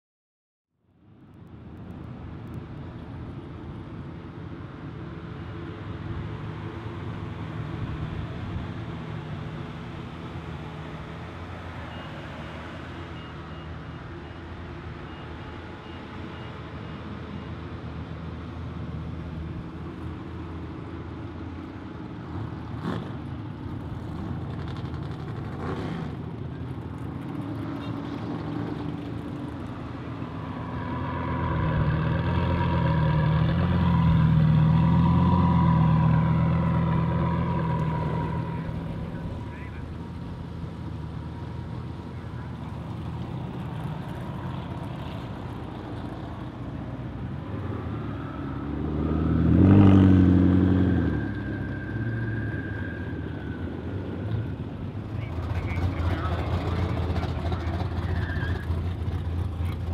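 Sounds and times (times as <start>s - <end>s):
performance car engines running: 20.8s - 30.5s, 36.5s - 46.8s, 54.0s - 59.9s.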